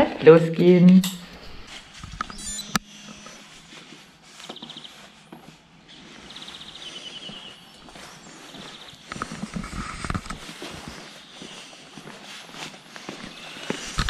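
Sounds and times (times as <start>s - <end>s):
songbird trills: 2.2s - 3.9s, 4.5s - 5.2s, 5.9s - 9.3s, 13.3s - 14.0s.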